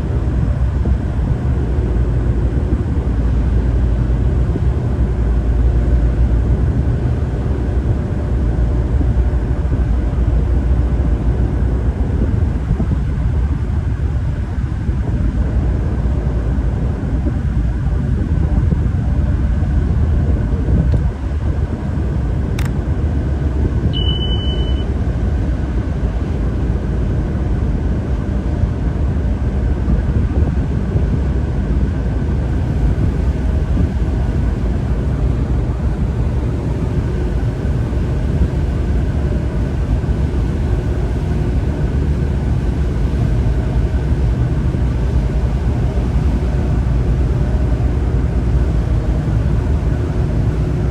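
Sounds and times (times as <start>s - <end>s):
tugboat engine rumbling: 0.0s - 50.9s
click: 22.6s - 22.8s
short high beep: 23.9s - 24.9s.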